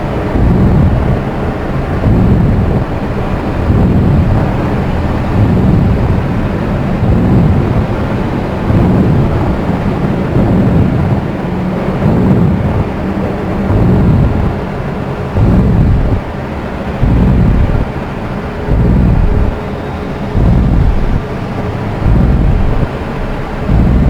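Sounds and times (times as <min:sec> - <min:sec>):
dark ambient drone music: 0:00.0 - 0:24.0.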